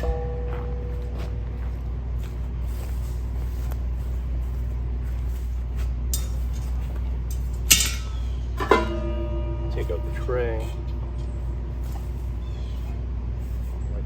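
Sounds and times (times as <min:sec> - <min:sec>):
steady low rumble: 0:00.0 - 0:14.0
sharp metal clinks: 0:06.1 - 0:12.9.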